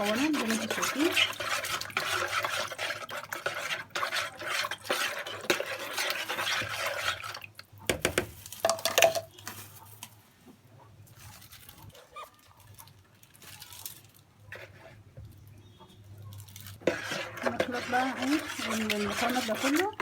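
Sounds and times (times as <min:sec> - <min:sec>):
spoon stirring in a bowl: 0:00.0 - 0:09.3, 0:16.7 - 0:20.0.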